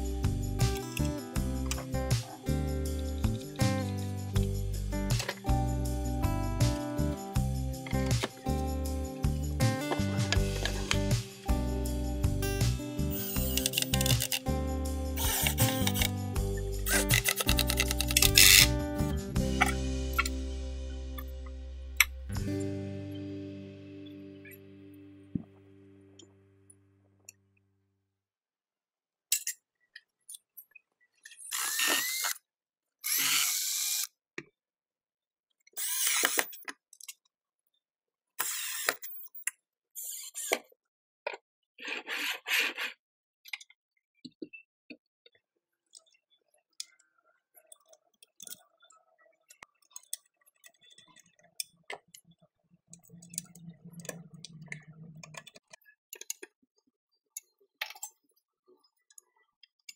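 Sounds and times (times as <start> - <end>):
low hum: 14.5 - 26.8
power tool bursts: 15.2 - 16.1.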